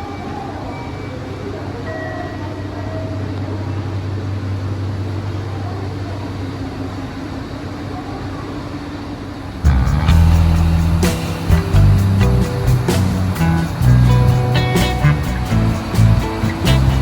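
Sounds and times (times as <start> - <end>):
street traffic rumble: 3.1 - 17.0
vehicle running close by: 9.6 - 17.0.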